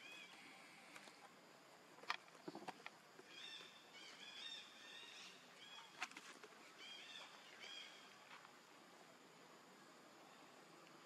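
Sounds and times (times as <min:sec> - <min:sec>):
faint bird chirps: 0:00.0 - 0:01.2, 0:03.2 - 0:08.3.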